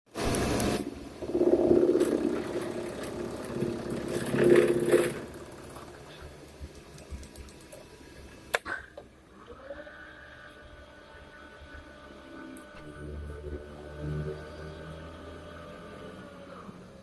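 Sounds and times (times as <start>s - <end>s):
milling machine whining: 0.1s - 7.8s.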